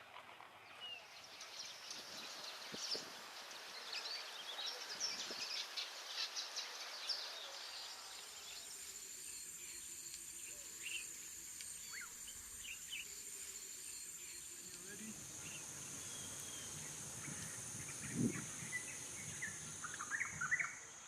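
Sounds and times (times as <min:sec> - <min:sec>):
birds chirping and calling: 0:00.7 - 0:21.0
high-pitched insect buzz: 0:08.1 - 0:20.8.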